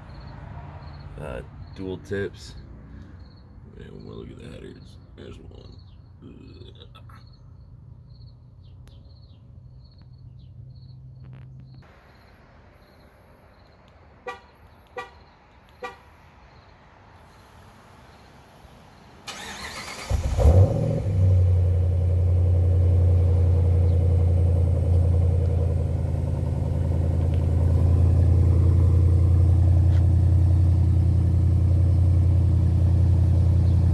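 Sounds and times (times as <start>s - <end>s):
engine idling loud: 21.6s - 33.9s.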